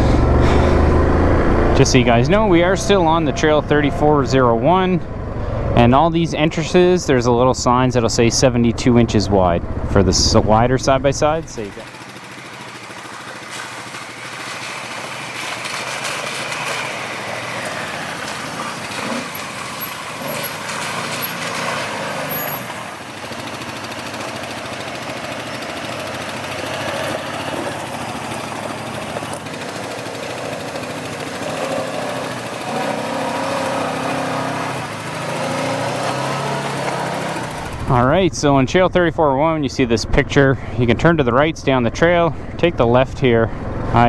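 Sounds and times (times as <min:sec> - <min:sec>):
quad bike engine revving: 0:00.0 - 0:44.0
tyres on gravel: 0:10.8 - 0:38.6.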